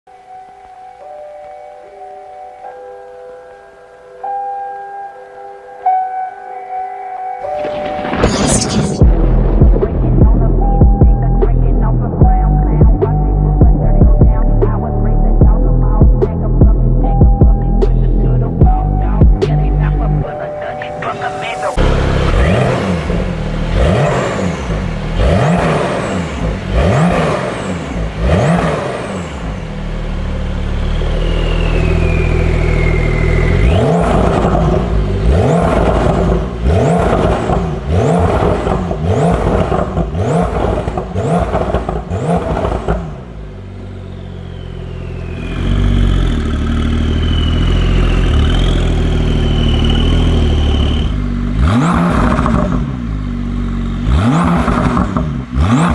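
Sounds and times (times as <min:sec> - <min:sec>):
car engine revving in blips: 0:09.0 - 0:55.9
high whine: 0:29.8 - 0:37.4.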